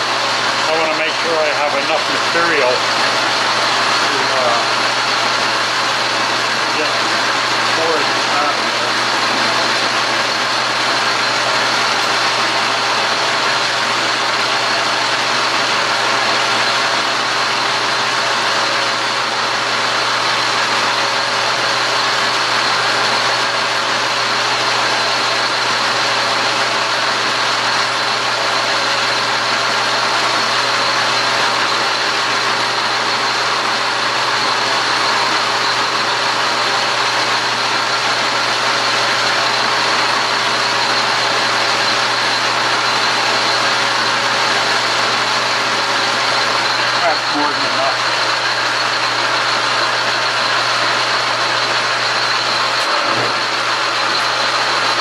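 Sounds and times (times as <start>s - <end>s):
metal lathe humming and whining: 0.0s - 55.0s.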